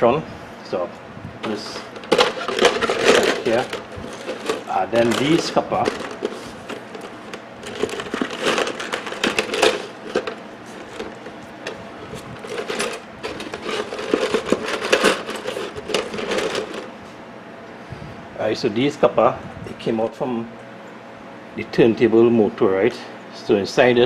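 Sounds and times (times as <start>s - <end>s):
scrap copper clinking: 1.4s - 16.9s.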